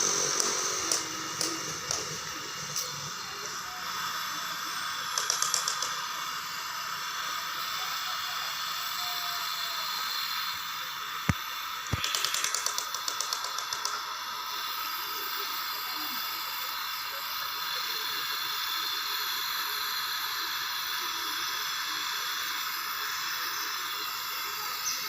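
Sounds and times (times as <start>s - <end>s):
steady hiss: 0.0s - 25.0s
sharp clicks: 0.4s - 2.2s, 5.1s - 6.0s, 11.3s - 14.0s
rapid clicking: 5.1s - 6.0s, 11.3s - 14.0s.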